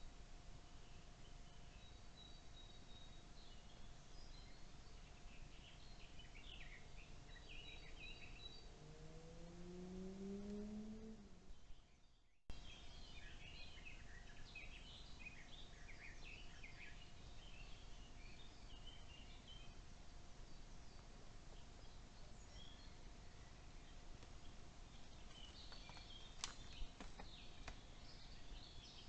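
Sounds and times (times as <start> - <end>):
small birds chirping: 0.0 - 29.0
low rising hum: 7.9 - 12.0.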